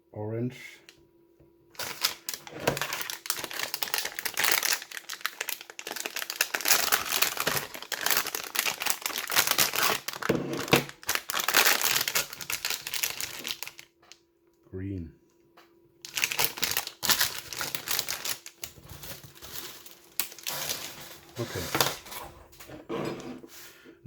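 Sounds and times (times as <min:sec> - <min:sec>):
packaging wrap crinkling: 0:01.7 - 0:13.9, 0:16.0 - 0:22.1.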